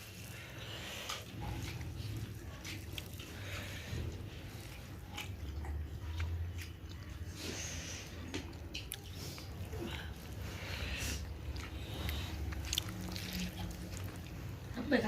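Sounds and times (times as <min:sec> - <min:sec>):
chewing and biting food: 0:00.0 - 0:14.7
wet mouth clicks and smacks: 0:11.5 - 0:14.3.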